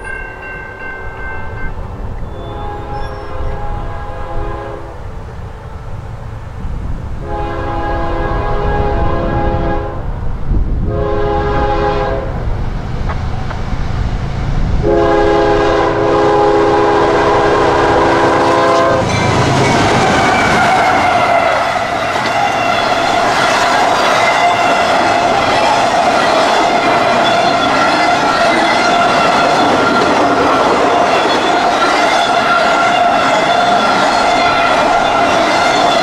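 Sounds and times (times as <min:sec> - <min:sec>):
locomotive air horn blasts: 0:02.3 - 0:05.0, 0:07.2 - 0:10.1, 0:10.8 - 0:12.4, 0:14.8 - 0:19.1
train wheels clattering on rails: 0:12.8 - 0:14.8, 0:18.3 - 0:36.0.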